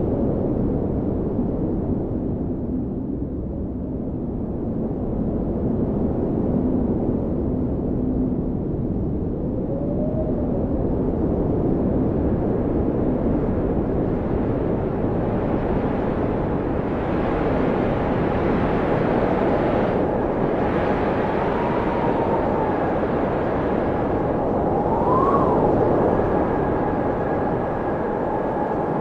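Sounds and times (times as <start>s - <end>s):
howling blizzard wind: 0.0s - 29.0s.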